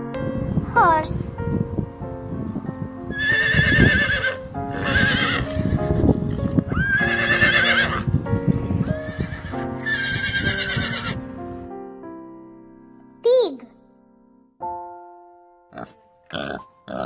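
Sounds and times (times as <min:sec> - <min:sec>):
background music: 0:00.0 - 0:17.0
horse whinnying: 0:03.1 - 0:05.6, 0:06.7 - 0:08.1, 0:09.1 - 0:11.2.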